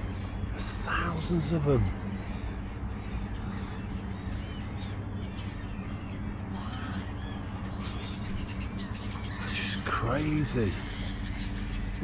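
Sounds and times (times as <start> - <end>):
flock of birds chirping: 0.0 - 12.0
steady low hum: 0.0 - 12.0.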